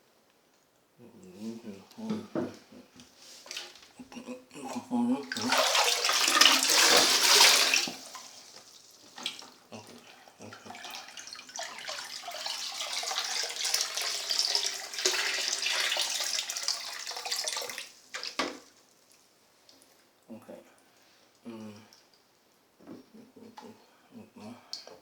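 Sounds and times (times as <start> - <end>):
water running from tap: 5.4 - 10.0, 10.6 - 18.8.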